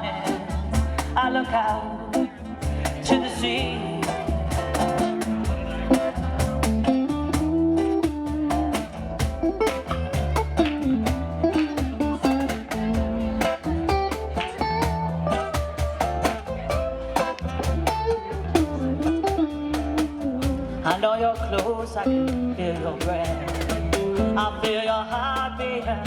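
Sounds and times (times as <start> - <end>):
bass: 0.0 - 26.0
guitars: 0.0 - 26.0
percussion keeping a steady beat: 0.0 - 26.0.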